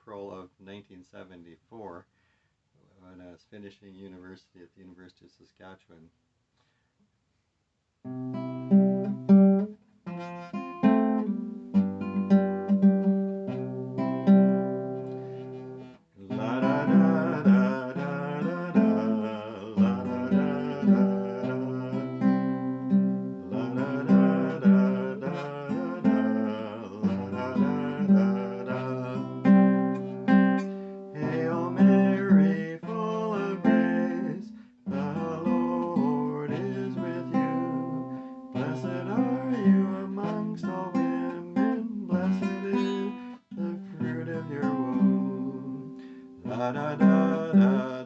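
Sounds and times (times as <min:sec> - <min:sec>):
acoustic guitar picked notes: 0:08.0 - 0:48.0
strummed guitar chords: 0:08.1 - 0:48.0.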